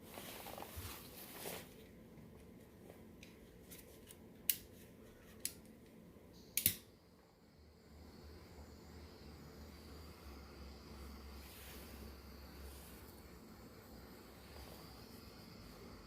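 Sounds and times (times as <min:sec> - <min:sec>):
sharp clicks of tools: 0:06.4 - 0:06.9
rustling hiss: 0:07.4 - 0:16.0.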